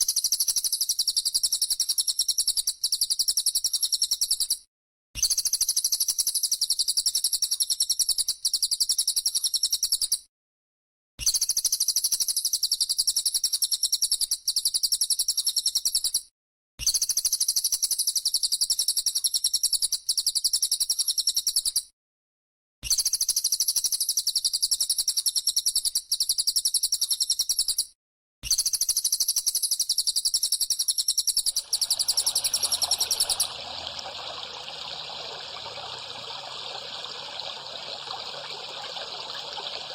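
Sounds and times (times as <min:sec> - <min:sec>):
trickling water: 0:31.5 - 0:39.9.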